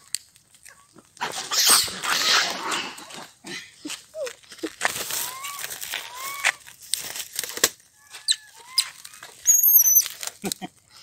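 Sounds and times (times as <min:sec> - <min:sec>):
bird whistled chirps: 0:08.3 - 0:10.1
high wavering bird whistle: 0:08.3 - 0:10.1.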